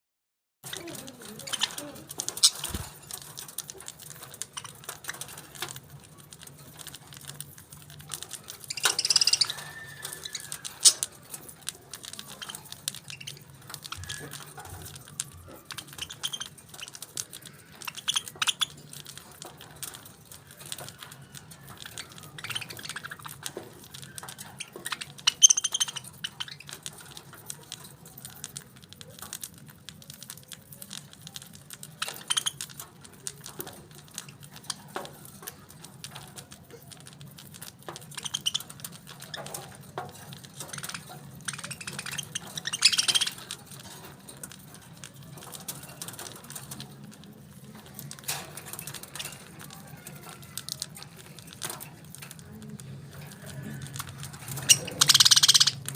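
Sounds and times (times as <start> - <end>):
parakeets chirping: 0.6 - 55.9
small clicks and taps: 0.6 - 55.9.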